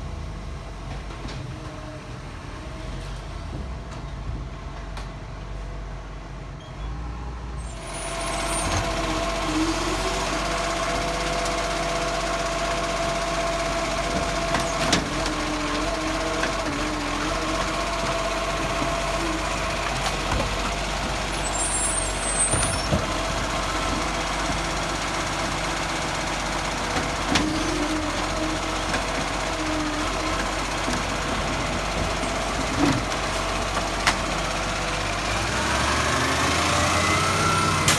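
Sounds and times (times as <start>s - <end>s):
garbage truck engine running: 7.6s - 37.9s.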